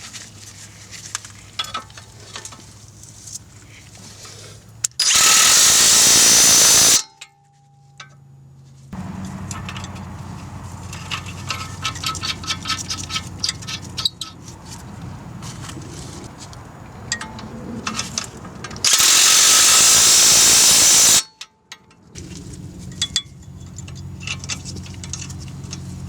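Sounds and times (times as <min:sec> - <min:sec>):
loud steady hiss: 0:05.0 - 0:07.0, 0:18.9 - 0:21.2
small motor with rapid clicking: 0:05.0 - 0:07.0, 0:18.9 - 0:21.2.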